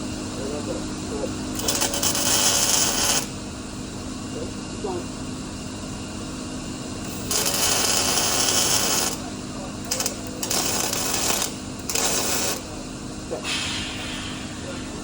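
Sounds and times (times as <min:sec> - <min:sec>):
welding arc crackling: 0:01.6 - 0:03.4, 0:07.1 - 0:12.7.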